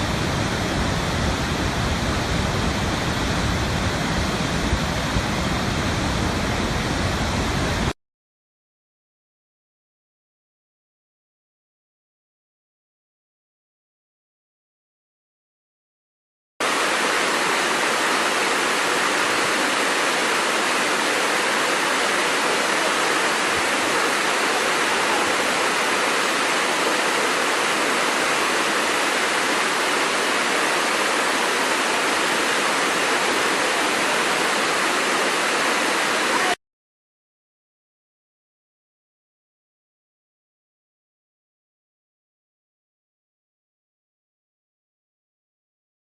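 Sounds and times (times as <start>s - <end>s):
waterfall rushing: 0.0s - 7.9s, 16.6s - 36.6s.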